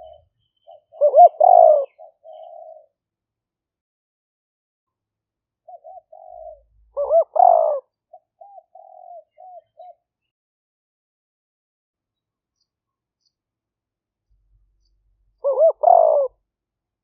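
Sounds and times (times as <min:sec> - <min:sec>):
dove cooing: 0:00.0 - 0:03.0, 0:05.7 - 0:10.1, 0:15.4 - 0:16.4.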